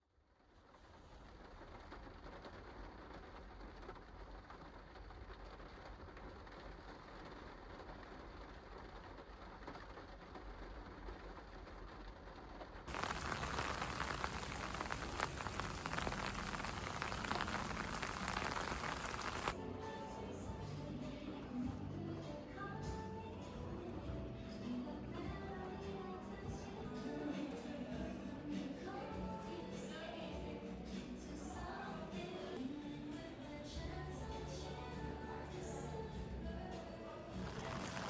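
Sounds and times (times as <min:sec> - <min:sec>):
rain falling on a car: 0:00.6 - 0:19.6, 0:37.4 - 0:38.0.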